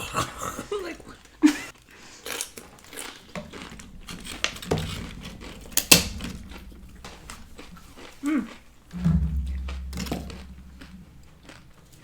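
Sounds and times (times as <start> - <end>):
dishes clicking and clinking: 2.4 - 12.0
sharp knock: 9.0 - 11.2.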